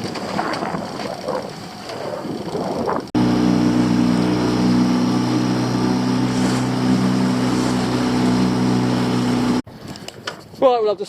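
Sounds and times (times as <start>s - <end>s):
boat engine running: 2.3s - 9.6s.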